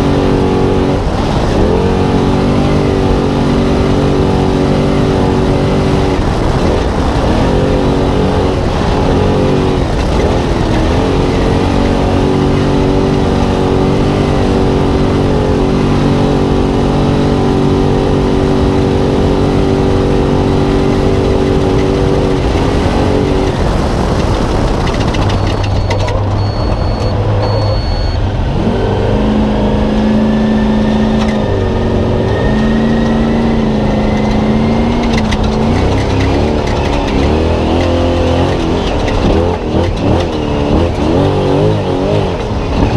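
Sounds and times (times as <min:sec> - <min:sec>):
truck engine at high revs: 0:00.0 - 0:42.9
short high beeps: 0:25.3 - 0:28.3.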